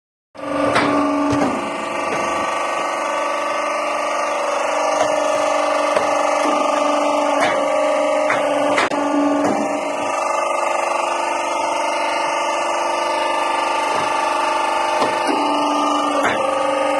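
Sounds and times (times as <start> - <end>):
machine motor hum: 0.4 - 16.9
sharp knocks: 0.6 - 2.5, 4.9 - 9.8, 13.9 - 14.3, 15.0 - 15.5, 16.1 - 16.5.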